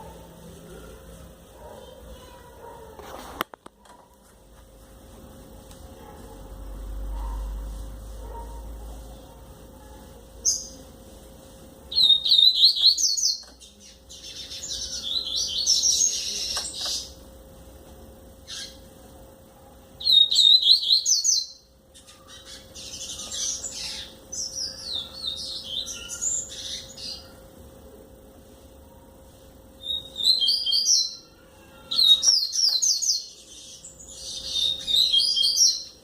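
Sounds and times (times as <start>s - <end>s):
bird singing whistled notes: 20.0s - 21.6s, 29.8s - 31.2s, 34.1s - 36.0s.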